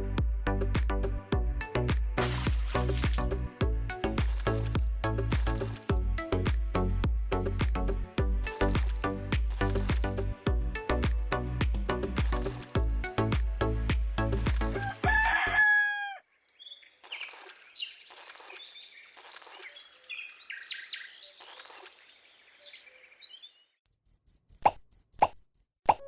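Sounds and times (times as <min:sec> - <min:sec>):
music: 0:00.0 - 0:15.4
rooster crowing: 0:14.8 - 0:16.2.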